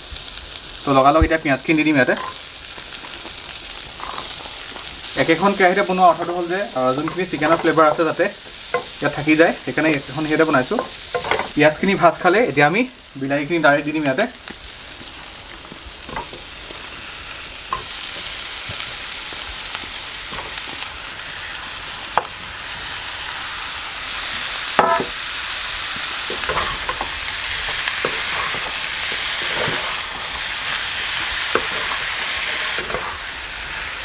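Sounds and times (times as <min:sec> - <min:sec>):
onions sizzling in butter: 0:00.0 - 0:34.0
utensils knocking against pan: 0:08.7 - 0:09.0, 0:10.8 - 0:11.6, 0:24.8 - 0:25.2, 0:26.3 - 0:28.8.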